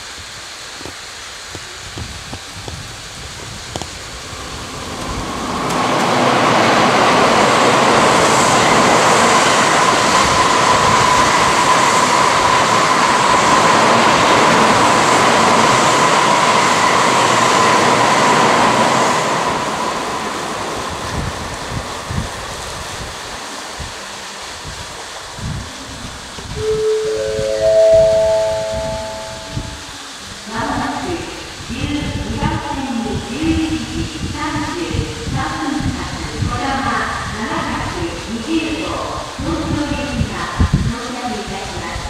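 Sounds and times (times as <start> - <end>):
train rushing past: 1.3 - 42.0
thin high tone: 26.5 - 30.2.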